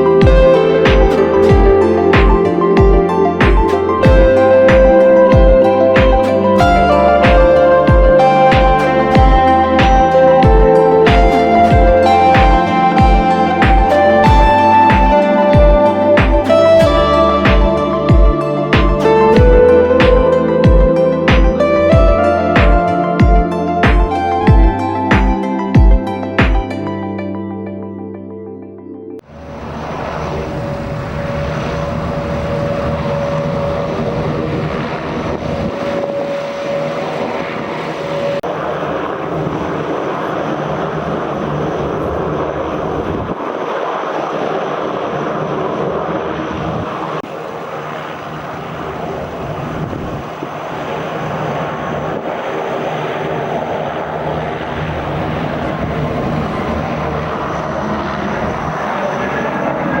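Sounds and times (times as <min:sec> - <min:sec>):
jet engines running: 0:00.0 - 0:26.9, 0:29.2 - 1:00.0
steady whine: 0:00.0 - 0:27.8, 0:29.2 - 1:00.0.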